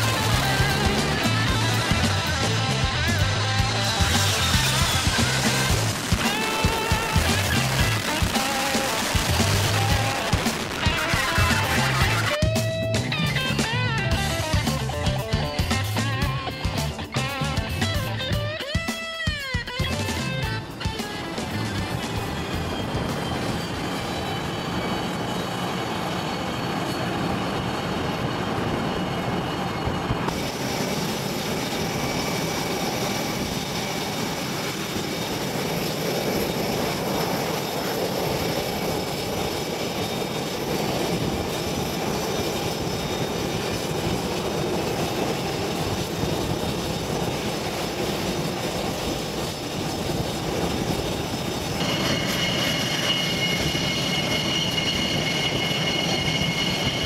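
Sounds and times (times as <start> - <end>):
airplane engine noise: 0.0 - 57.0
faint high whine: 19.9 - 57.0.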